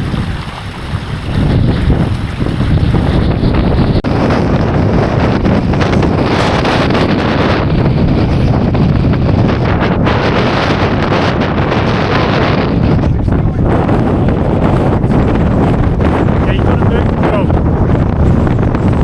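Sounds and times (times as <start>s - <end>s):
wind blasting across microphone: 0.0s - 19.0s.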